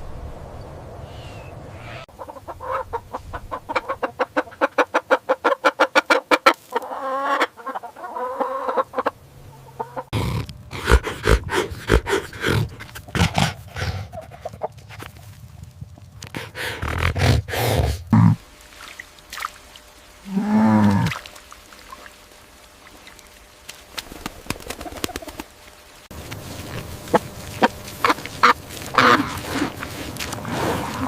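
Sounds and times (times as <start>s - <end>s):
farm birds calling: 1.7s - 14.8s, 26.6s - 30.1s.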